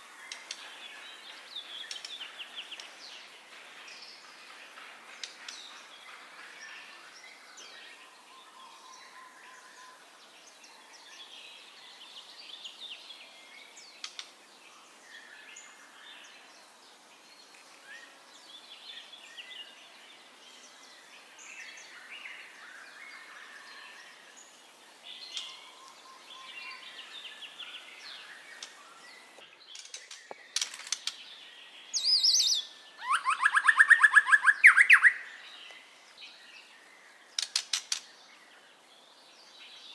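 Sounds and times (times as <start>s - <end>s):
bird singing whistles and chirps: 31.8s - 35.8s.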